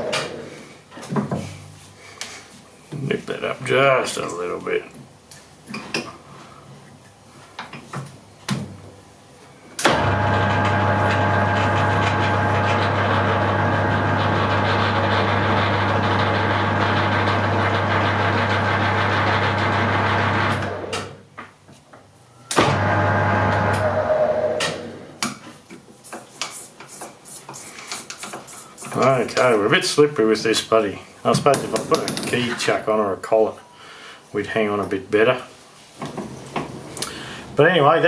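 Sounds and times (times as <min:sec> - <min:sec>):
lathe motor humming: 0:09.9 - 0:20.9.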